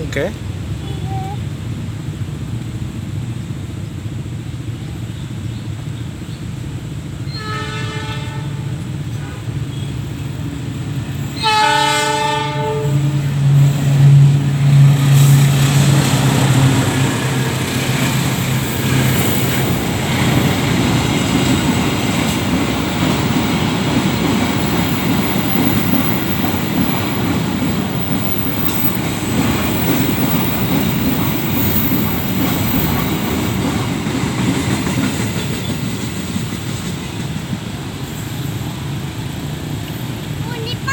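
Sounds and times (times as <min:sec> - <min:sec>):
train horn blasts: 0:07.3 - 0:09.6, 0:11.4 - 0:13.3
diesel engine passing: 0:12.6 - 0:34.6
wheels clattering on rails: 0:13.2 - 0:38.4.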